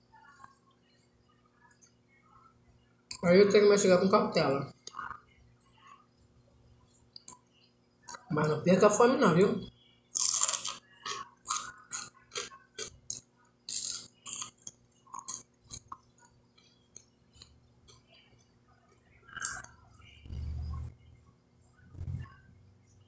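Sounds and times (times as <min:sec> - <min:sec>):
chewing crispy fried fish: 0:10.1 - 0:19.9.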